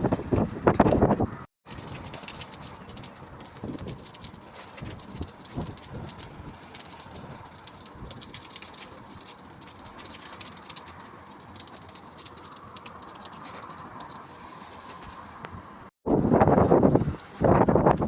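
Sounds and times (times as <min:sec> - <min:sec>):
wind gusting against microphone: 0:00.0 - 0:08.6, 0:14.9 - 0:18.0
rain pattering: 0:01.6 - 0:18.0.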